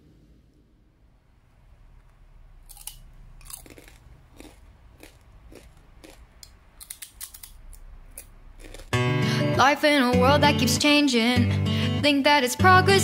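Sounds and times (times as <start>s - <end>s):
crunching and chewing crispy food: 2.6s - 9.0s.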